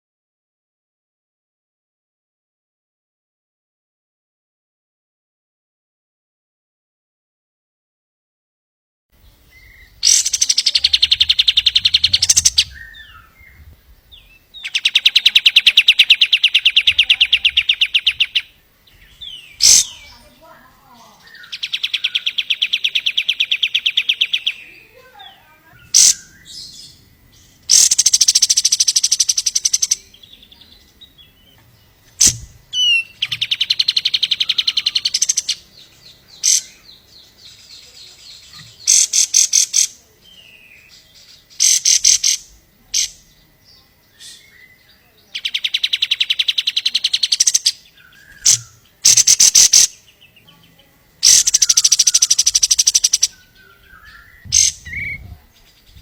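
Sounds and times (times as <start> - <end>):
bird sharp chirps: 9.2 - 56.0
songbird rattling trills: 9.8 - 20.6, 21.2 - 30.5, 31.8 - 40.0, 41.4 - 43.3, 45.5 - 50.1, 51.2 - 56.0.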